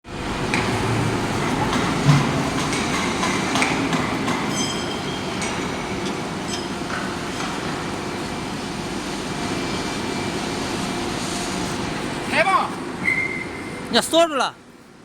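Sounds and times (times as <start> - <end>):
industrial din: 0.1 - 7.8
metal clanks and knocks: 0.5 - 7.8
high metallic ringing: 4.5 - 7.0.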